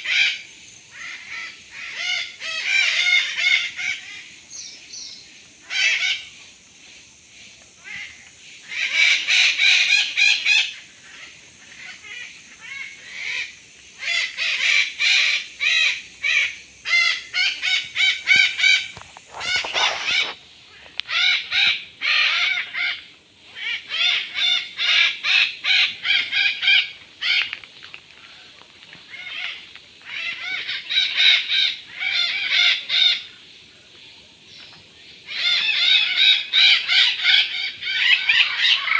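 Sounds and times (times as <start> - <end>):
birds calling rapidly: 7.8 - 27.6.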